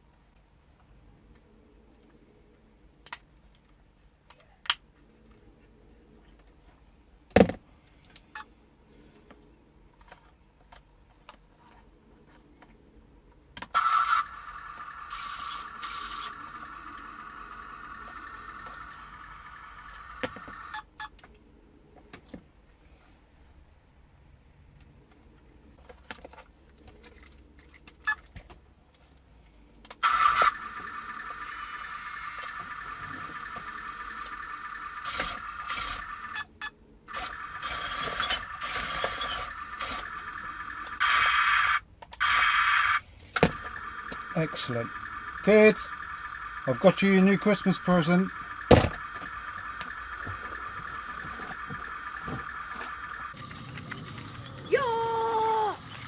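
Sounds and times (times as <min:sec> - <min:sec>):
toy tank motor whine: 0:13.8 - 0:20.9, 0:30.0 - 0:36.5, 0:37.1 - 0:56.0.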